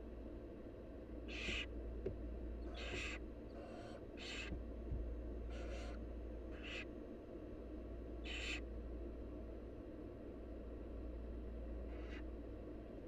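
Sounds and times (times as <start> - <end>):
steady low hum: 0.0 - 13.0
owl nestlings hissing calls: 1.3 - 1.7, 2.7 - 4.5, 5.5 - 6.9, 8.2 - 8.6.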